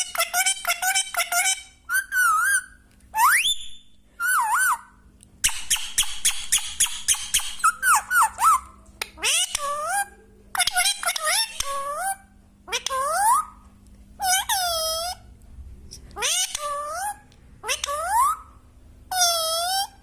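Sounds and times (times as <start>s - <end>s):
parrot squawking: 0.0s - 3.6s, 4.2s - 13.6s, 14.2s - 15.3s, 16.2s - 20.0s
parrot warbling whistles: 1.9s - 8.7s.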